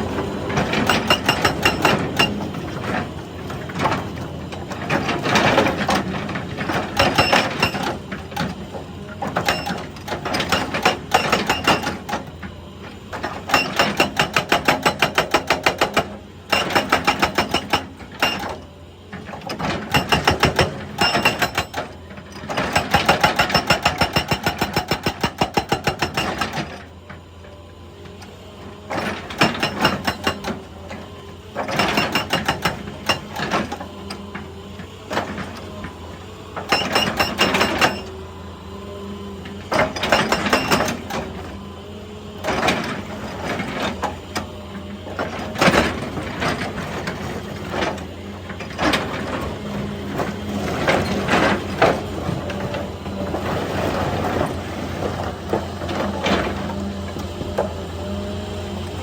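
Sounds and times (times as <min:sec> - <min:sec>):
excavator engine running: 0:00.0 - 0:59.0
hydraulic breaker hammering rock: 0:00.1 - 0:12.4, 0:13.0 - 0:27.3, 0:28.8 - 0:38.8, 0:39.4 - 0:41.7.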